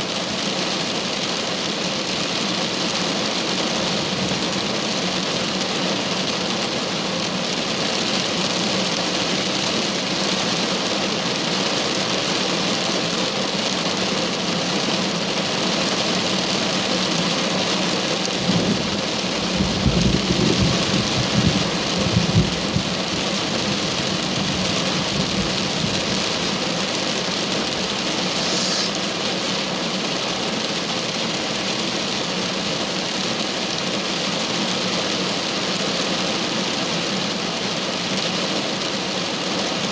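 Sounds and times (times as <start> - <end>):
heavy rain falling: 0.0 - 39.9
thunder rumbling: 18.5 - 23.8.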